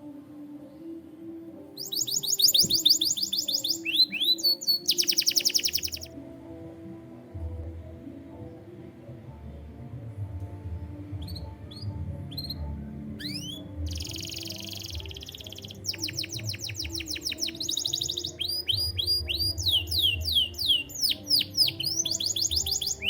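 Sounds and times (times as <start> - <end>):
canary singing: 1.8 - 6.2, 11.1 - 23.0.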